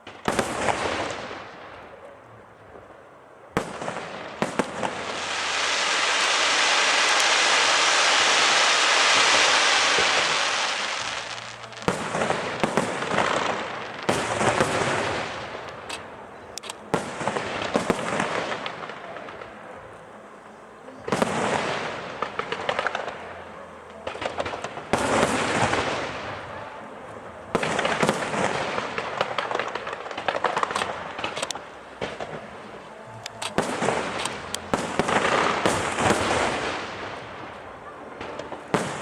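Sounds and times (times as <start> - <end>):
firework cracks: 0.0 - 2.0, 3.5 - 20.0, 20.8 - 39.0
firework hiss: 3.6 - 19.6, 20.8 - 39.0
firework shell bursts: 33.2 - 37.0.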